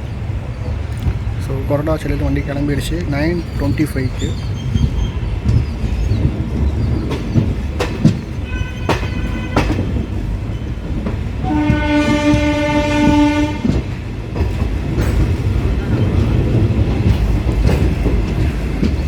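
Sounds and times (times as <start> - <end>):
train rumbling: 0.0 - 19.0
wheels clicking over rail joints: 0.7 - 19.0
locomotive horn: 8.4 - 9.9, 11.4 - 13.9.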